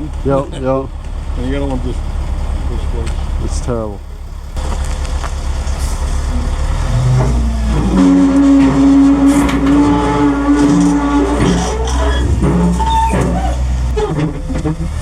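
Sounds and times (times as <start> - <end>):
diesel engine revving: 0.0 - 15.0
mechanical whine: 6.2 - 15.0.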